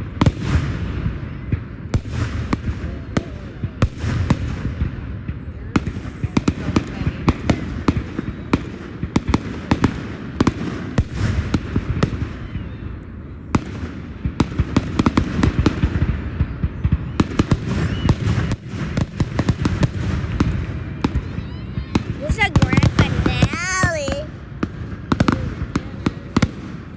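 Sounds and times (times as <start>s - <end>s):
low rumble of fireworks: 0.0s - 26.9s
fireworks bangs: 22.0s - 25.2s.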